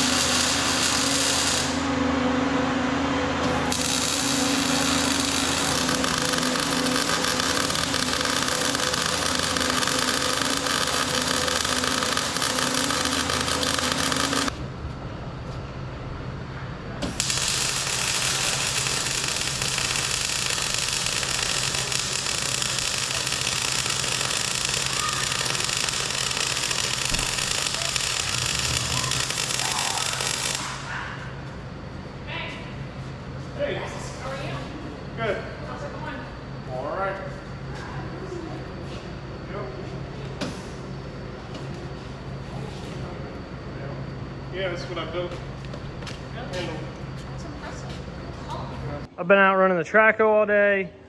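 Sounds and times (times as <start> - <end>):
power tool running: 0.0 - 14.6, 17.0 - 30.9.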